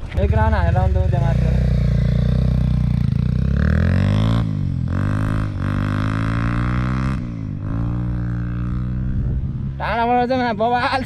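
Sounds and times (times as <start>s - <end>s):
motorcycle accelerating through gears: 0.0s - 9.6s.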